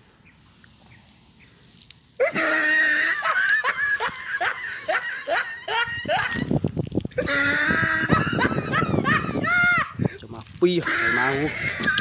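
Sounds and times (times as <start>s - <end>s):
small bird shrieking distress calls: 10.8s - 11.8s.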